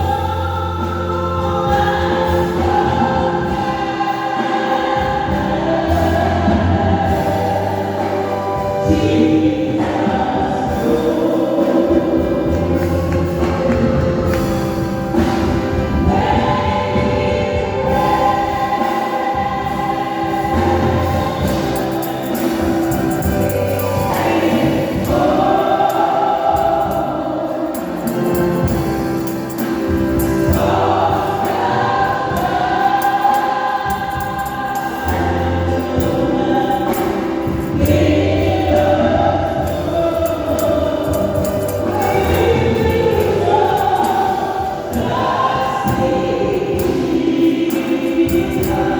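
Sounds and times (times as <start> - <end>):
choir singing gospel: 0.0 - 48.9
instrumental accompaniment: 0.0 - 48.9.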